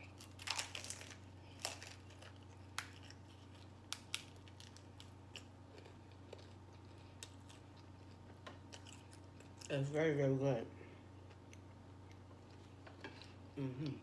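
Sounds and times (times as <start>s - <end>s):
person chewing close to microphone: 0.0s - 9.7s.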